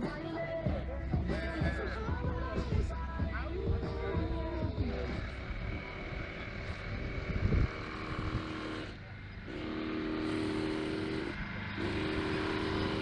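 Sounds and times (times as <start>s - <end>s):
model helicopter drone: 0.0s - 13.0s.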